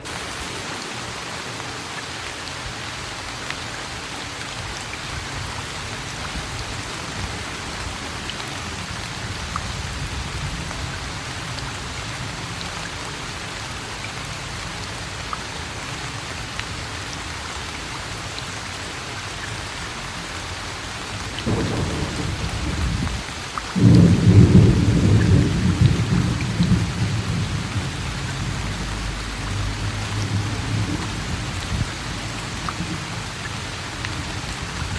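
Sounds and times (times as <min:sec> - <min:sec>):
steady rain falling: 0:00.0 - 0:34.9
low rumble of thunder: 0:21.4 - 0:33.4.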